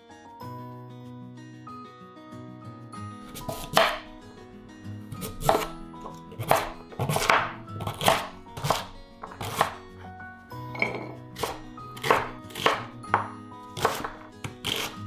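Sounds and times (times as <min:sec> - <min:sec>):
background music: 0:00.0 - 0:15.0
knife chopping on cutting board: 0:03.3 - 0:04.1, 0:05.1 - 0:09.8, 0:10.8 - 0:15.0.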